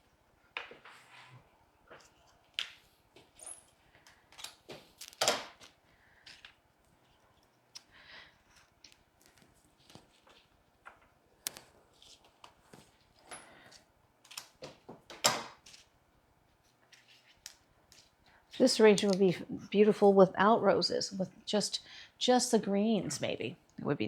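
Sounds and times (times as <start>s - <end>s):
flower stems clicking and snapping: 4.1s - 6.6s, 11.4s - 12.8s, 17.4s - 19.4s.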